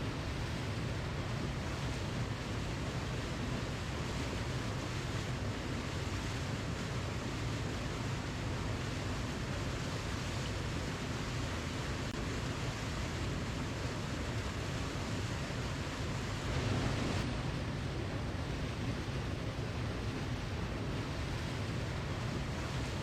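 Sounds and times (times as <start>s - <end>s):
waterfall rushing: 15.5s - 17.6s.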